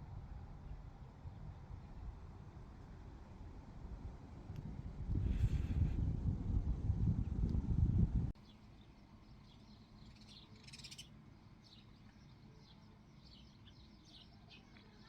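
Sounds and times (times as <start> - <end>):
small birds chirping: 8.4 - 15.0.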